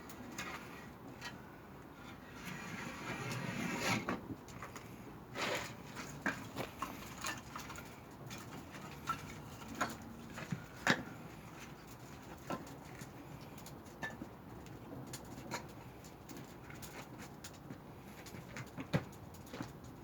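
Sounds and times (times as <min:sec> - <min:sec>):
logs crackling and popping in fire: 0:04.2 - 0:20.0.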